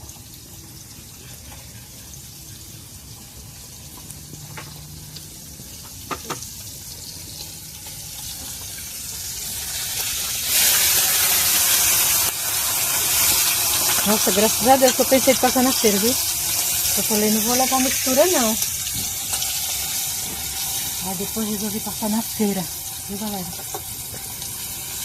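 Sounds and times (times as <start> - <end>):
water running and splashing: 8.3 - 25.0.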